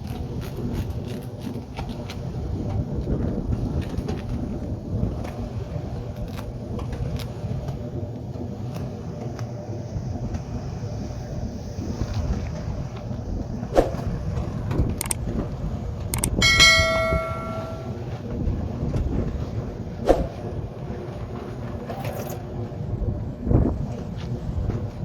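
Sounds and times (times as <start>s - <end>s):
metal object ringing: 16.2s - 18.0s
sharp knocks: 16.2s - 18.0s.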